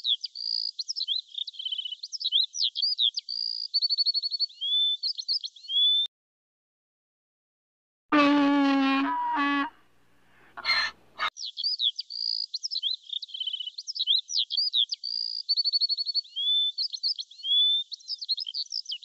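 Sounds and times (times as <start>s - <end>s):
songbird singing: 0.0s - 6.1s, 10.6s - 19.0s.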